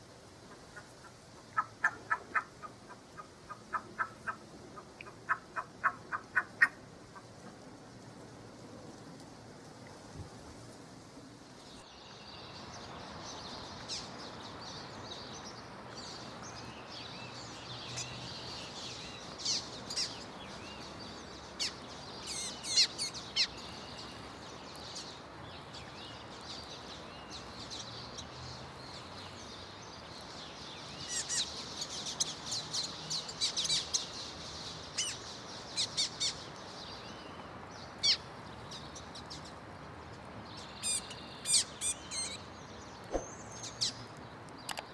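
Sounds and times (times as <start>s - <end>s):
background hiss: 0.0s - 44.9s
birds chirping: 11.6s - 44.9s.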